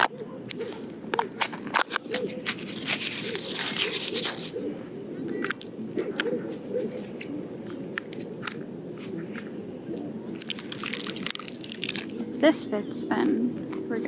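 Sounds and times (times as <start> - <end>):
fabric crinkling and rustling: 1.3 - 4.5, 10.4 - 12.2.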